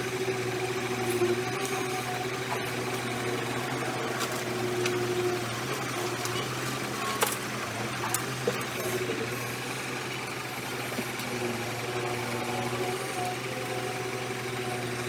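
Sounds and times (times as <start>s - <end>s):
heavy machine engine running: 0.0s - 15.0s.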